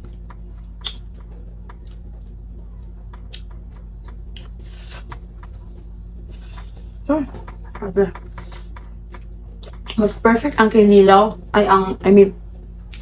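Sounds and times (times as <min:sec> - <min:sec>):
soft chewing: 0:00.0 - 0:10.2
steady low hum: 0:00.0 - 0:13.0
mouth clicks: 0:00.8 - 0:01.1, 0:03.2 - 0:03.5, 0:04.3 - 0:05.2.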